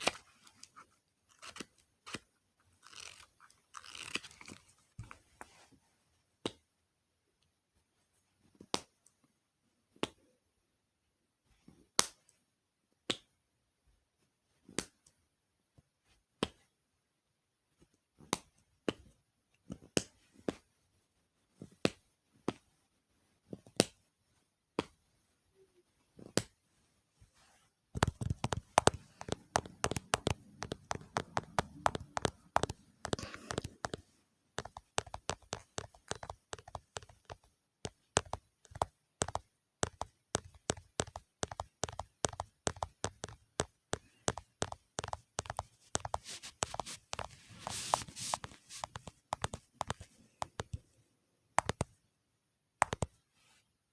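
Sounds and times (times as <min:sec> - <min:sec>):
fast dense tapping: 0:28.0 - 0:34.0, 0:34.6 - 0:50.8.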